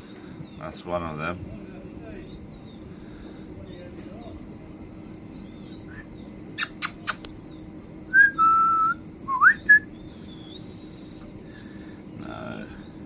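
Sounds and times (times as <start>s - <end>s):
quick sharp clicks: 6.6s - 7.4s.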